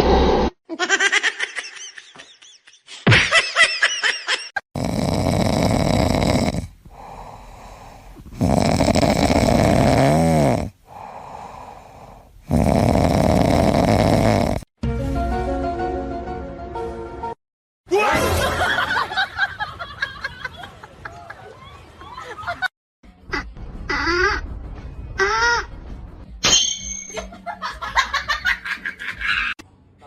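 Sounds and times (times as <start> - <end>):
animal snoring: 4.8 - 14.7.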